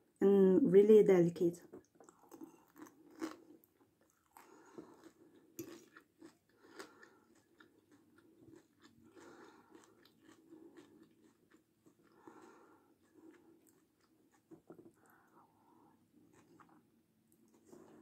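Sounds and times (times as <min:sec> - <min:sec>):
crunchy chewing: 0:01.8 - 0:15.4, 0:16.0 - 0:18.0.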